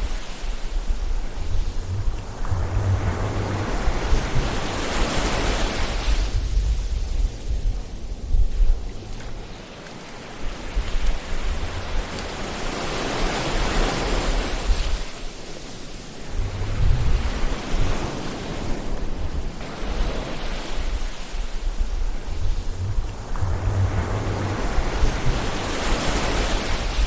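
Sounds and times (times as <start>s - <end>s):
ocean waves breaking: 0.0s - 27.0s
low rumble: 0.8s - 9.4s, 16.3s - 17.8s, 20.8s - 27.0s.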